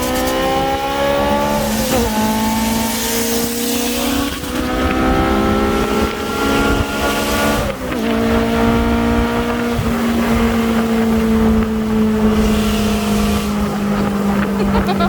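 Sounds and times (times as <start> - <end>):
sports car engine revving: 0.0 - 15.0.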